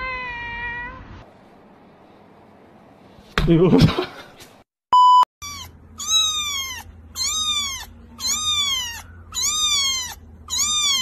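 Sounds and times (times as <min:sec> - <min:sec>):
kitten meowing: 0:05.4 - 0:11.0.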